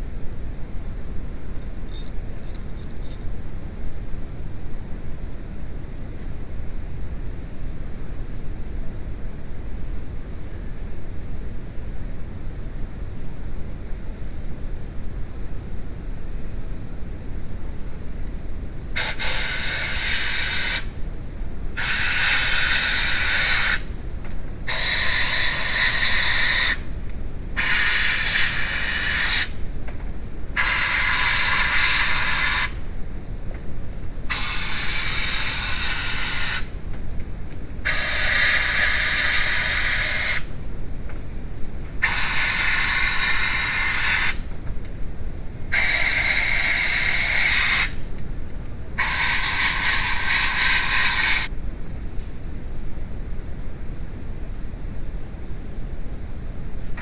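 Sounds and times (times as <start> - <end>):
low steady rumble: 0.0 - 57.0
pressurized spray hissing: 19.0 - 20.9, 21.8 - 23.8, 24.7 - 26.8, 27.6 - 29.5, 30.6 - 32.8, 34.3 - 36.7, 37.8 - 40.5, 42.0 - 44.4, 45.7 - 47.9, 49.0 - 51.5.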